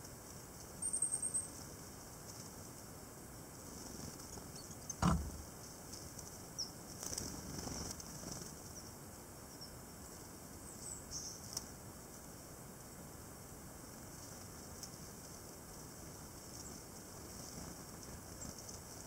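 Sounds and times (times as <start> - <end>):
thump: 5.0 - 5.5
bird wings fluttering: 7.0 - 8.6.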